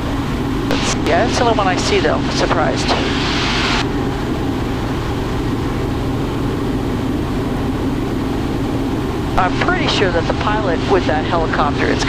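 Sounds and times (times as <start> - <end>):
helicopter engine and rotors drone: 0.0 - 12.0.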